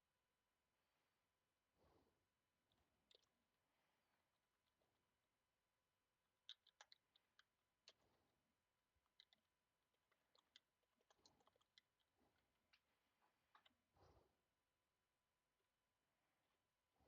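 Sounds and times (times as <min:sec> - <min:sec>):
faint keyboard typing: 0:06.4 - 0:08.1, 0:09.0 - 0:14.2.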